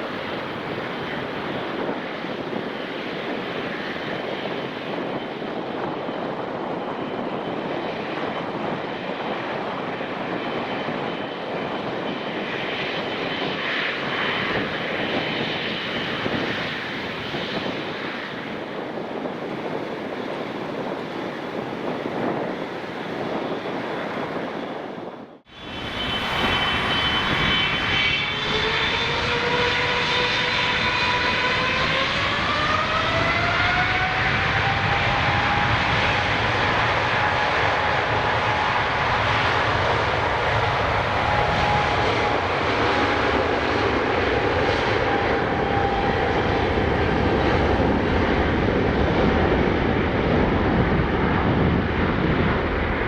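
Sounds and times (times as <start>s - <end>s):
jet engines spooling up: 25.5s - 53.0s.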